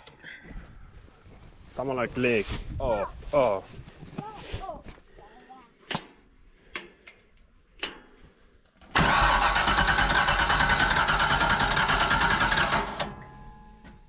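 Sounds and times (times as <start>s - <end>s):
engine running with rough flutter: 9.0s - 13.1s.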